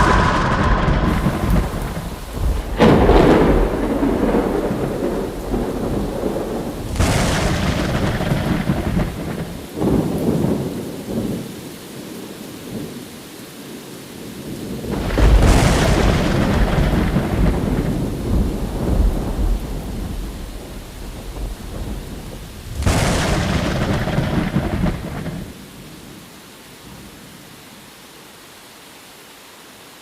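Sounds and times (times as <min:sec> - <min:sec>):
rolling thunder: 0:00.0 - 0:11.5, 0:14.5 - 0:25.6
rain: 0:00.0 - 0:30.0.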